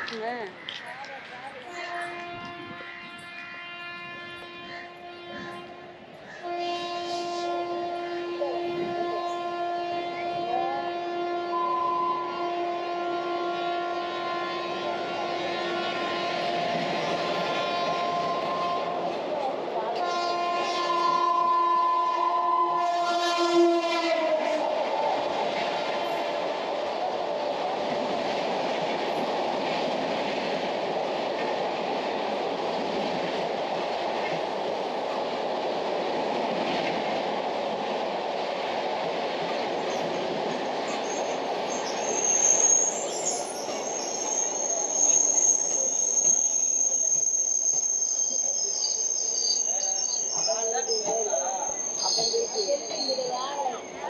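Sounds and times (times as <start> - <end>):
train wheels rumbling on rails: 0.0 - 54.0
train horn: 1.6 - 19.2, 19.9 - 26.7
high steady squeal: 40.9 - 54.0.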